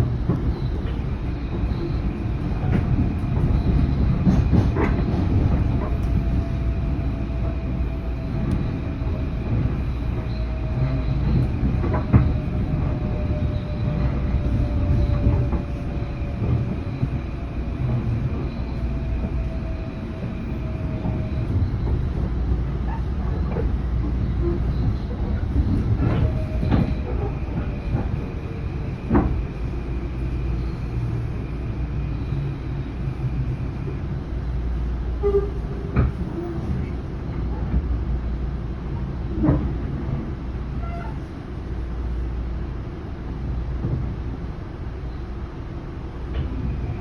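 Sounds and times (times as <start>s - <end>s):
train rumbling on rails: 0.0s - 47.0s.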